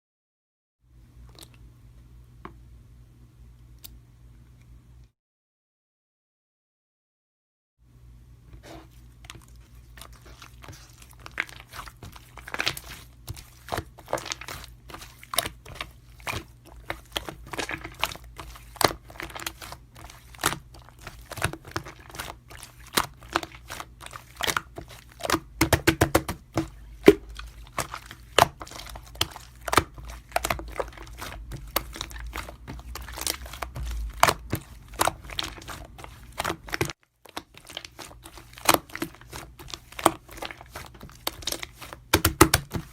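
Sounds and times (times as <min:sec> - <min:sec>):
low steady hum: 0:00.9 - 0:05.1, 0:07.8 - 0:42.9.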